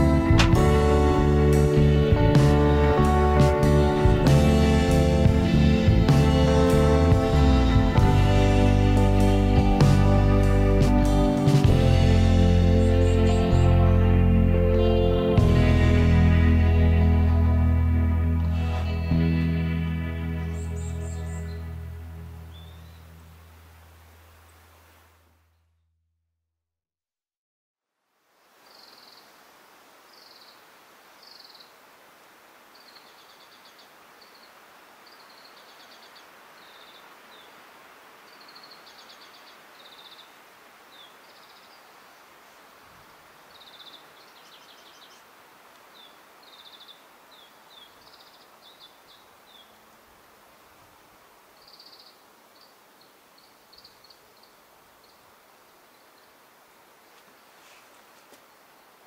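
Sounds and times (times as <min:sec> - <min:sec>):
outdoor hiss: 0:00.0 - 0:25.4, 0:27.9 - 0:59.0
small birds chirping and trilling: 0:12.5 - 0:14.1, 0:20.4 - 0:23.2, 0:32.7 - 0:37.6, 0:38.2 - 0:42.7, 0:43.4 - 0:49.8, 0:51.6 - 0:56.4.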